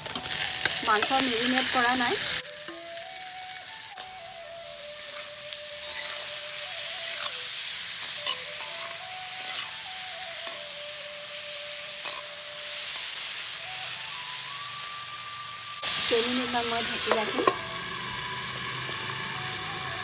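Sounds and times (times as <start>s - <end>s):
chicken sizzling in hot oil: 0.0s - 20.0s
spatula scraping a pan: 5.0s - 9.8s, 12.0s - 12.3s.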